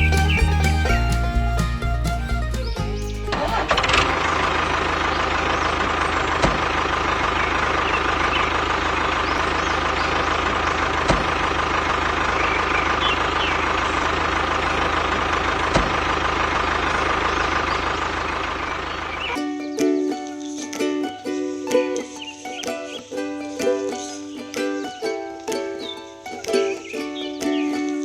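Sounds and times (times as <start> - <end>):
small engine running: 0.0 - 19.4
sharp engine knock: 3.5 - 19.4.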